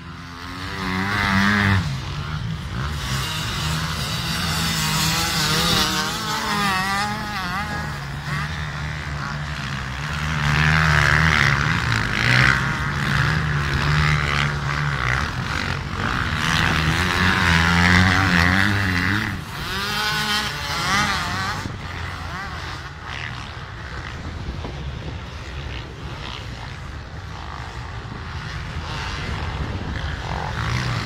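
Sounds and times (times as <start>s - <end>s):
racing motorcycle engines revving: 0.0s - 31.0s.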